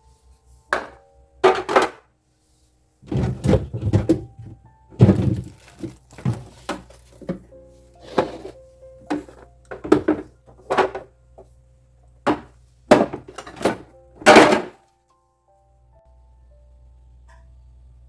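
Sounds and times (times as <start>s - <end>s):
household items knocking and clattering: 0.7s - 2.1s, 3.0s - 11.1s, 12.2s - 14.8s.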